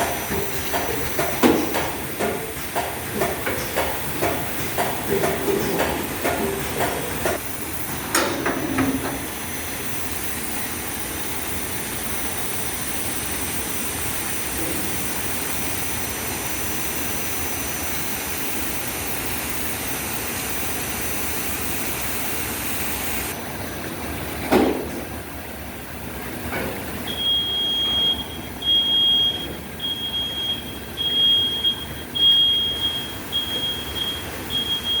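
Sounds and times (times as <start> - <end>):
packaging machine hissing: 0.0 - 23.4.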